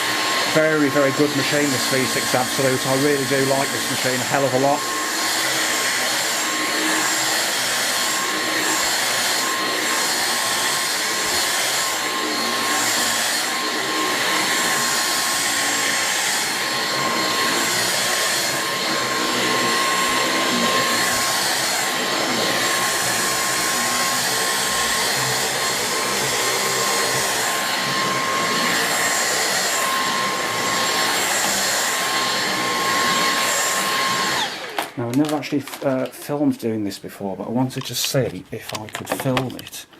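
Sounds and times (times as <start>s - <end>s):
vacuum cleaner on carpet: 0.0s - 36.1s.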